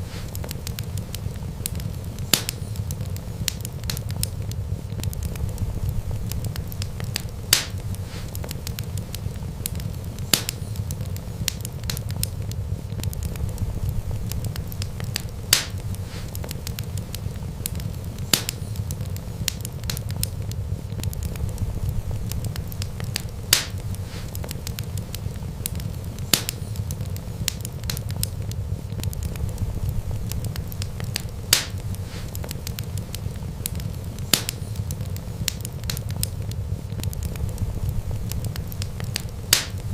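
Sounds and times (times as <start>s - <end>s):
sharp pops from fire: 0.0s - 39.9s
wood fire crackling: 0.0s - 39.9s.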